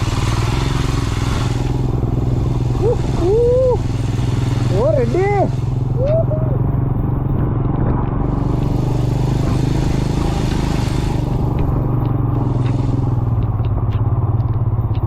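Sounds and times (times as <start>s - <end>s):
hiss: 0.0s - 6.5s, 8.3s - 13.4s
motorcycle engine running: 0.0s - 15.0s.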